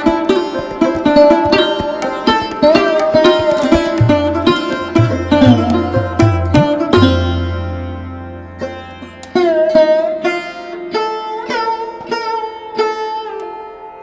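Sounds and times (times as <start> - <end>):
plucked sitar-like notes: 0.0 - 14.0.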